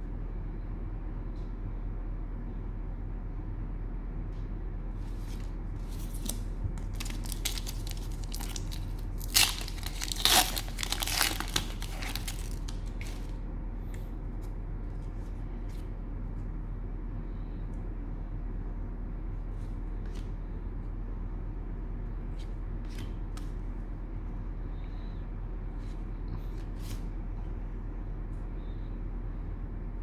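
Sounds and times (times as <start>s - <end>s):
steady low hum: 0.0s - 30.0s
cellophane wrapper crackling: 5.8s - 13.4s.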